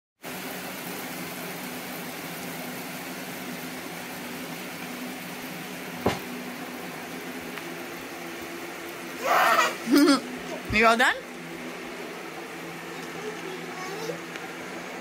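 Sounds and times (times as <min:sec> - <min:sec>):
steady rain falling: 0:00.2 - 0:15.0.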